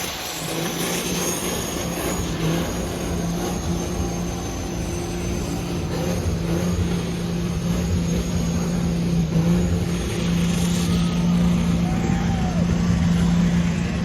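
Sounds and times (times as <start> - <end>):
diesel truck engine droning: 0.0 - 14.0.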